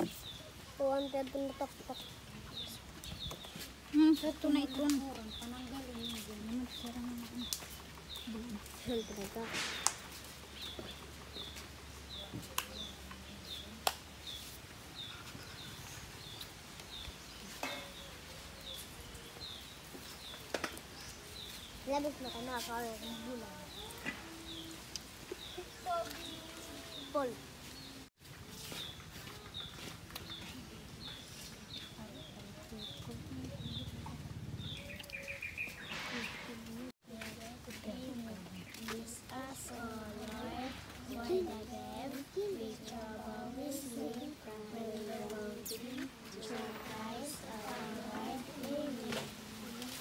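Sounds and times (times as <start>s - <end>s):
small bird chirping: 28.6s - 36.6s.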